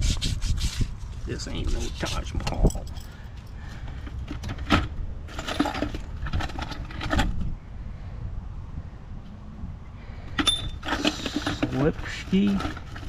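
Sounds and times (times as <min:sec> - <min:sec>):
metal tools clinking: 0:01.6 - 0:07.4, 0:10.4 - 0:13.0.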